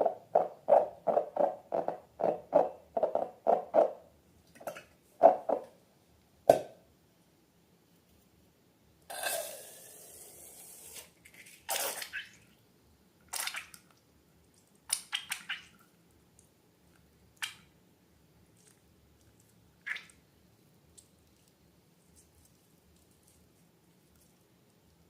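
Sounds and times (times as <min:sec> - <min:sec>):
sticky slime squelches and drips: 0:11.2 - 0:12.6, 0:13.2 - 0:17.8, 0:18.4 - 0:25.0.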